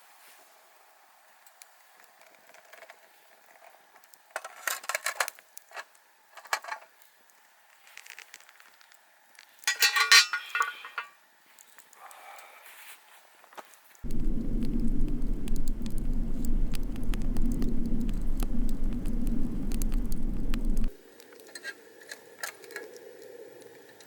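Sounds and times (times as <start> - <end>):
metal cookware clinking: 9.7 - 11.1.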